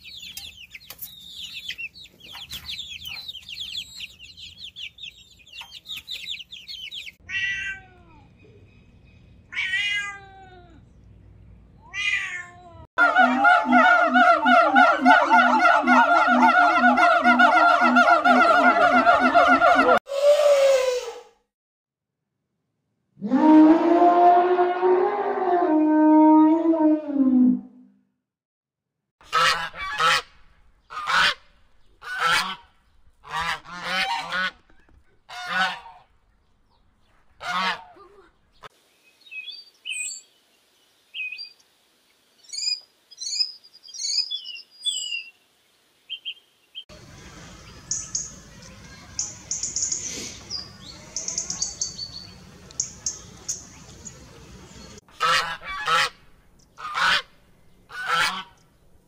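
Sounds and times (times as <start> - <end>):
high bird chirping: 0.0 - 7.2, 42.4 - 45.4, 46.1 - 55.0
loud honking calls: 13.0 - 20.0.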